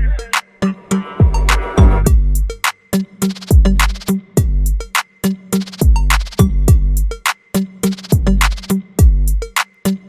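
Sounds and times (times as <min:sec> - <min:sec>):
hi-hat and snare hits: 0:00.2 - 0:10.0
deep kick drums: 0:01.2 - 0:02.6, 0:03.5 - 0:04.9, 0:05.8 - 0:07.2, 0:08.1 - 0:09.5.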